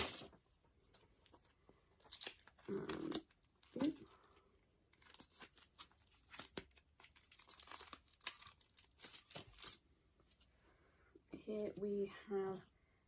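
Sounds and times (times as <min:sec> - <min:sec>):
packaging crinkling: 0:05.0 - 0:09.8.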